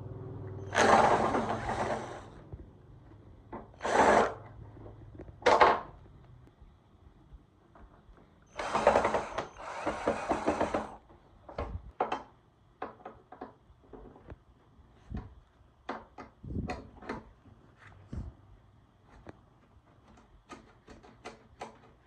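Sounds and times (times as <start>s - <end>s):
rasping bursts of noise: 0.6s - 2.4s, 3.8s - 4.4s, 8.5s - 11.0s
tools clicking and knocking: 20.0s - 22.0s.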